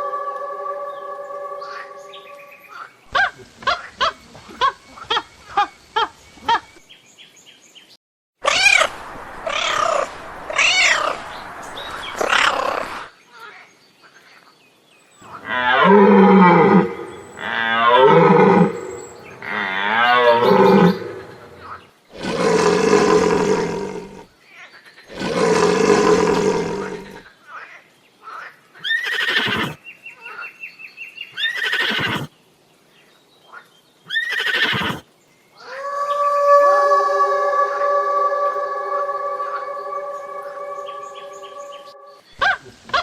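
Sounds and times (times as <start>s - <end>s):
wavering animal calls: 0.0s - 6.7s, 8.4s - 13.1s, 15.2s - 24.2s, 35.6s - 43.0s.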